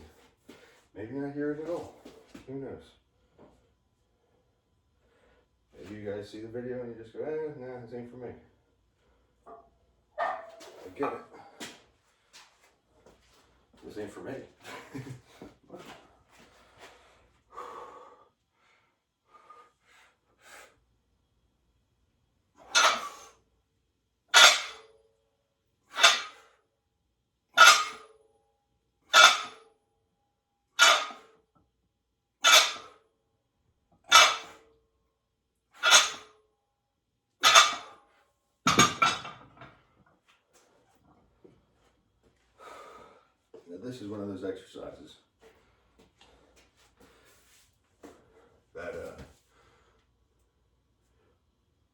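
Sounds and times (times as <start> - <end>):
man breathing: 16.4 - 20.9, 42.4 - 43.5, 49.4 - 50.4.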